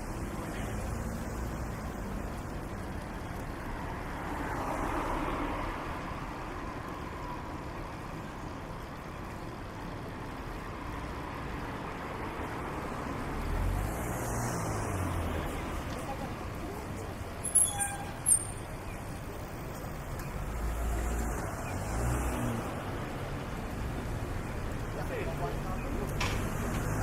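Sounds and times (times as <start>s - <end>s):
road traffic hum: 0.0s - 27.0s
vehicle passing: 12.5s - 16.8s, 20.4s - 27.0s.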